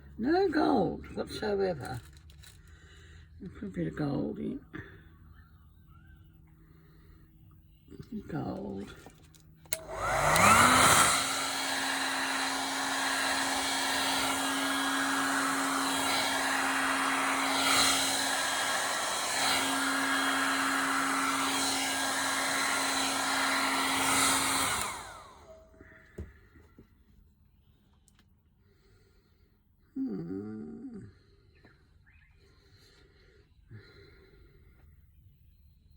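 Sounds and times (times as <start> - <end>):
hairdryer running: 8.3 - 26.3.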